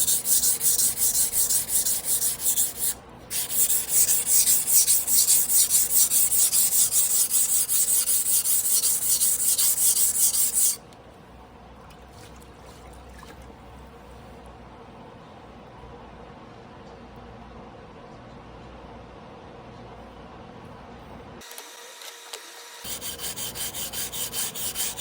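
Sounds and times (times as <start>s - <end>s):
knife scraping on whetstone: 0.0s - 10.8s, 22.9s - 25.0s.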